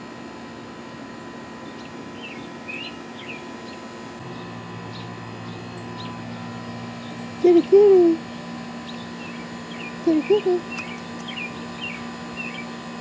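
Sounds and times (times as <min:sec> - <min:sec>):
steady low hum: 0:00.0 - 0:13.0
small birds chirping: 0:01.6 - 0:12.8
deeper steady drone: 0:04.0 - 0:12.6.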